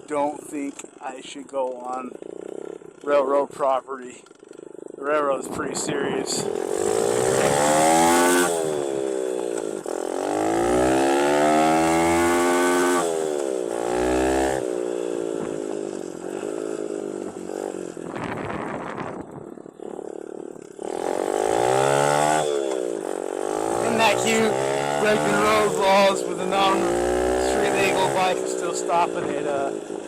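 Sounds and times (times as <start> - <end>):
dirt bike engine revving: 6.0 - 18.9, 19.8 - 30.0.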